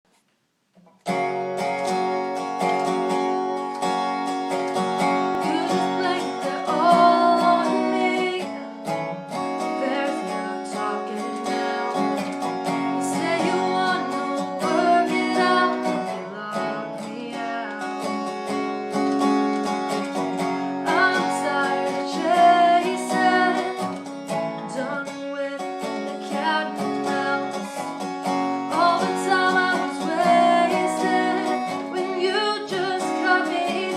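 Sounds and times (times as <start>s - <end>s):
acoustic guitar strummed and picked: 0.7s - 33.9s
person singing: 4.8s - 18.5s, 20.4s - 33.9s.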